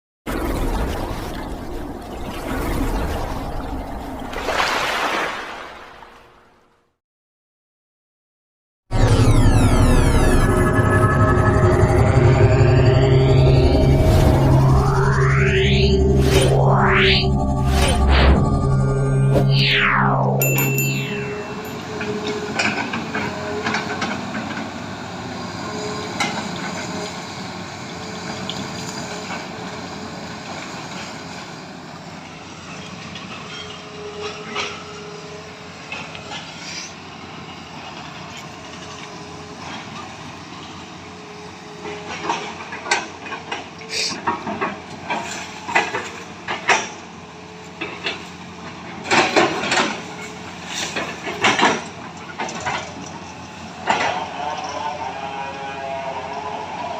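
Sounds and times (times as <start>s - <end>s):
heavy earthmoving machinery running: 8.9s - 20.4s, 21.1s - 56.9s.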